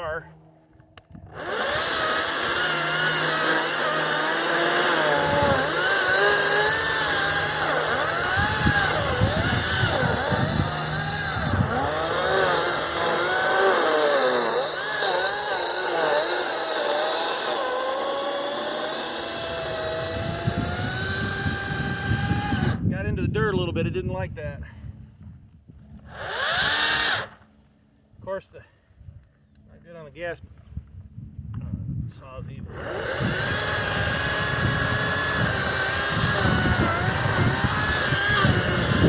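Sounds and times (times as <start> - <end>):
electric chainsaw cutting wood: 1.0 - 22.9, 26.1 - 27.5, 32.7 - 39.0.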